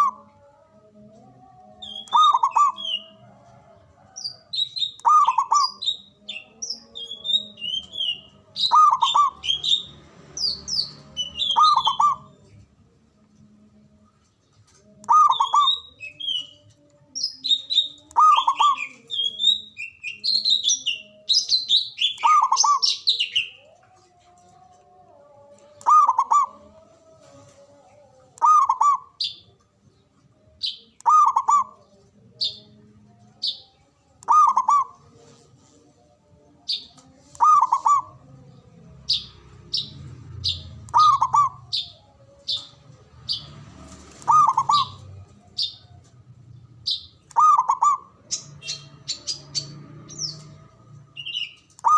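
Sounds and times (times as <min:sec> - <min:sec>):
small birds chirping: 0:00.0 - 0:26.8, 0:27.8 - 0:35.0, 0:36.4 - 0:51.9
dove cooing: 0:01.8 - 0:07.2, 0:07.9 - 0:09.8, 0:11.1 - 0:12.4, 0:22.0 - 0:29.2, 0:31.0 - 0:31.8, 0:34.2 - 0:35.1, 0:37.3 - 0:38.5, 0:39.1 - 0:42.7, 0:43.3 - 0:46.1, 0:46.9 - 0:49.4.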